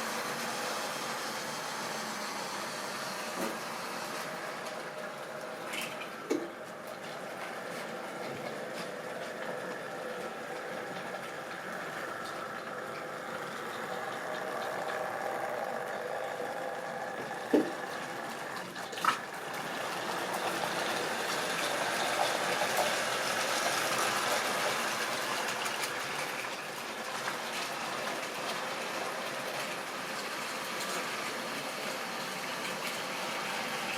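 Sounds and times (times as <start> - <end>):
model train motor hum and wheel rumble: 7.3 - 18.7, 19.3 - 33.9.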